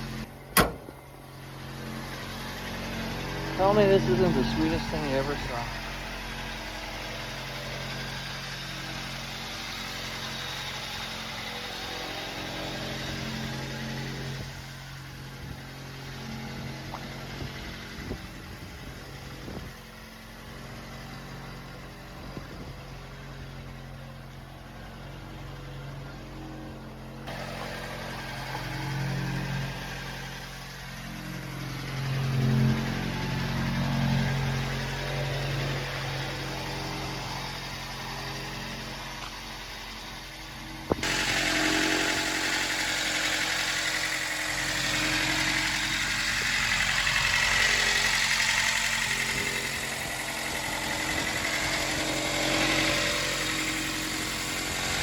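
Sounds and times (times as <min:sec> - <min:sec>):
pickup engine idling: 0:00.0 - 0:55.0.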